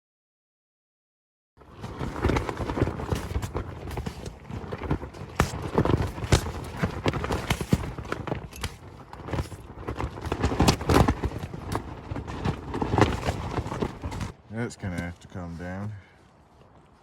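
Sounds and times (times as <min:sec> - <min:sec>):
fabric flapping and snapping: 0:01.6 - 0:15.2.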